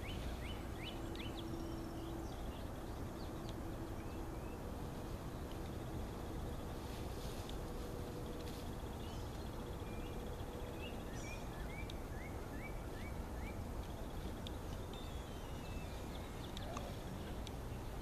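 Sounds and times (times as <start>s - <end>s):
low background rumble: 0.0s - 18.0s
songbird whistling: 9.1s - 13.6s, 14.7s - 17.0s.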